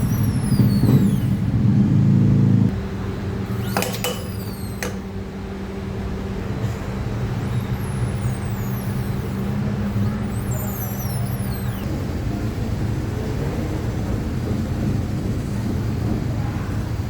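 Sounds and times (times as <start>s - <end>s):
wheel squealing: 0.0s - 2.7s, 3.4s - 5.4s, 6.6s - 12.1s.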